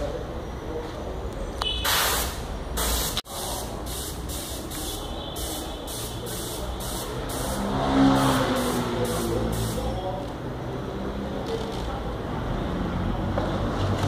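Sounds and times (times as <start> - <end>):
air spray gun hissing: 1.8 - 10.0.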